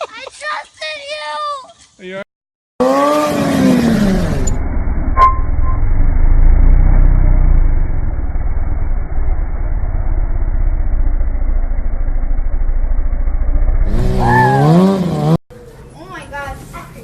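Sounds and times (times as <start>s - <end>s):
vehicle engine rumbling: 3.6s - 17.0s.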